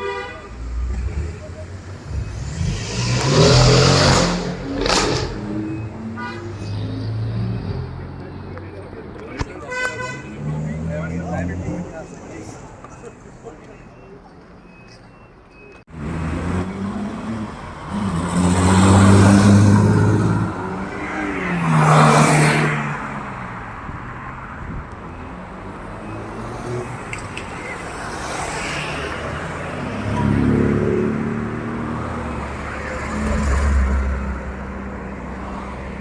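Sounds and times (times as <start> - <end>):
cars driving past: 0.4 - 13.7, 15.9 - 36.0.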